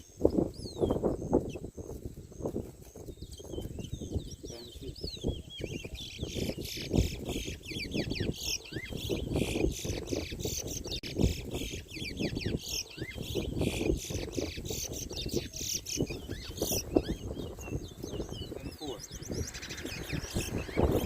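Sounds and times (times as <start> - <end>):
bird singing chirps and whistles: 0.0 - 21.0.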